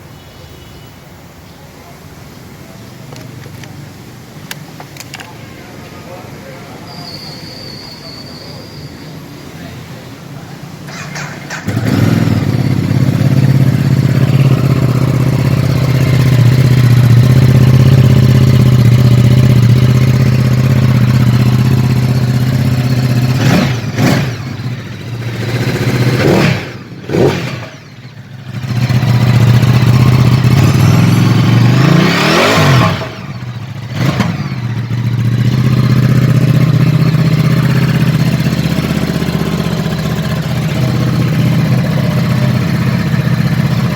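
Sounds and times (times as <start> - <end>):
motorcycle engine revving: 10.8 - 43.9.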